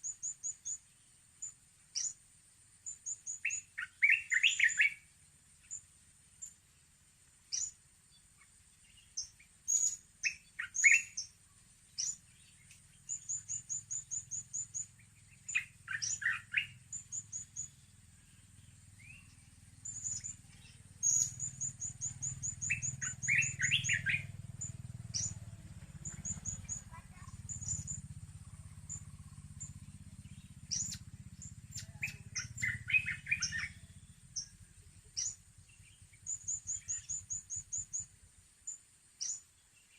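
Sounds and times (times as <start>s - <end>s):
lower chattering calls: 0.0s - 2.2s, 2.8s - 6.7s, 7.5s - 39.9s
parrots chirping: 3.3s - 5.0s, 9.1s - 11.3s, 13.0s - 17.7s, 19.0s - 24.3s, 26.0s - 29.7s, 30.3s - 34.5s.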